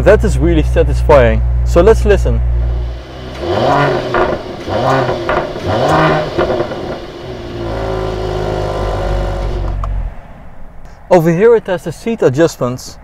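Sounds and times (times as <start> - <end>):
car engine idling: 0.0 - 10.9
car engine revving: 1.4 - 10.3.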